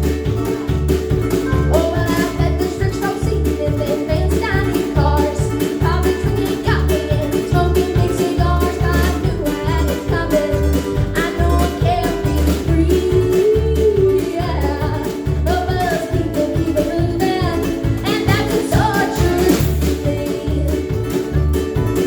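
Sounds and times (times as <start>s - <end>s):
bass line: 0.0s - 22.0s
strummed guitar: 0.0s - 22.0s
person singing: 1.4s - 21.2s.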